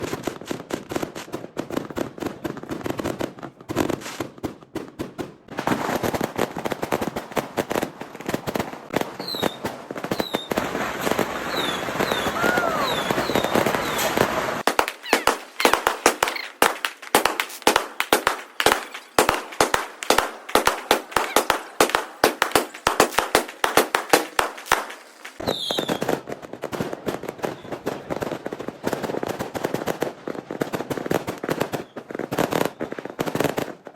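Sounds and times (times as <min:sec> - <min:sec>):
firecrackers banging and crackling: 0:00.0 - 0:33.9
fireworks whistling: 0:05.6 - 0:29.2, 0:31.1 - 0:33.6.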